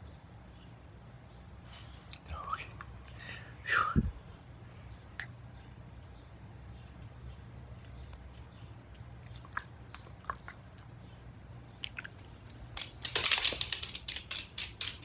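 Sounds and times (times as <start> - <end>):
dog mouth smacking: 9.2 - 10.9
dog nose clicks: 11.8 - 15.0.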